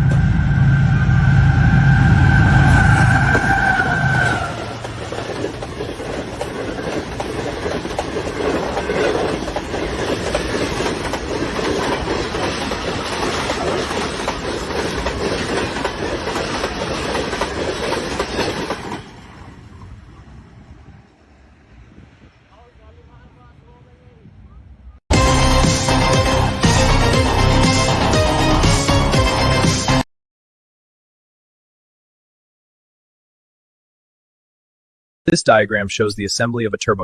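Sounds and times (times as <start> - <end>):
loud steady tone: 0.0 - 4.8
train rumbling on track: 0.0 - 29.8.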